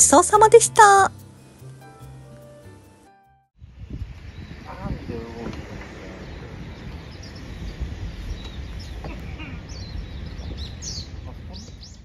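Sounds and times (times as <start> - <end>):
small birds chirping: 3.6 - 12.0.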